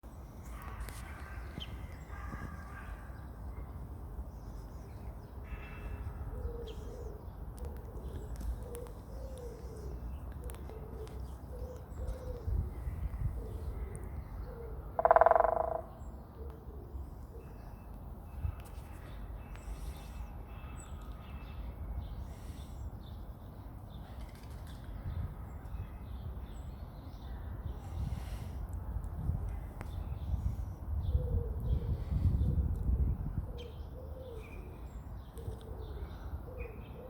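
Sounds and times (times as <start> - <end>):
faint bird calls: 5.4 - 17.8
woodpecker drumming: 15.0 - 16.0.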